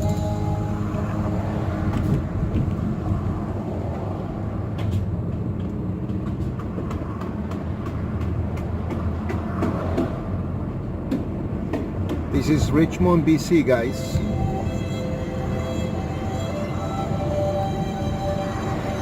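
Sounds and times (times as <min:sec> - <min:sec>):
engine and tyre rumble: 0:00.0 - 0:19.0
sharp clicks and knocks: 0:04.8 - 0:10.2.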